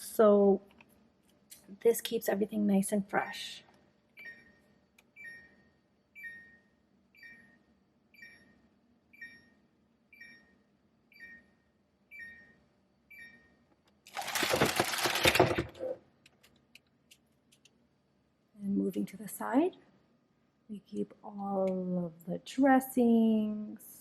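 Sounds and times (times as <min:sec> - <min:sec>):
refrigerator alarm beeping: 0:04.2 - 0:16.0.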